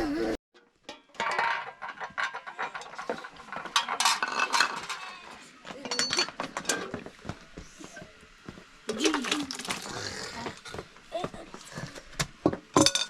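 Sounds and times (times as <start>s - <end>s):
utensils clinking on dishes and pots: 0.6s - 7.1s, 12.7s - 13.0s.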